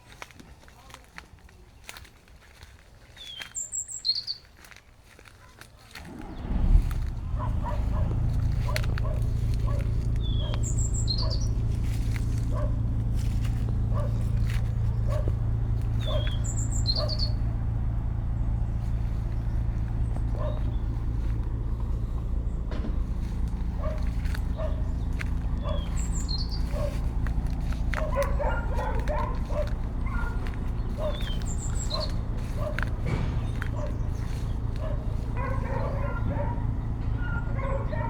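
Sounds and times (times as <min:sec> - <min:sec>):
bird chirps: 0:03.2 - 0:04.5, 0:08.5 - 0:12.7, 0:13.9 - 0:17.7, 0:22.0 - 0:38.0
steady low hum: 0:06.1 - 0:38.0
dog barking: 0:07.2 - 0:18.0, 0:19.9 - 0:21.5, 0:22.7 - 0:38.0.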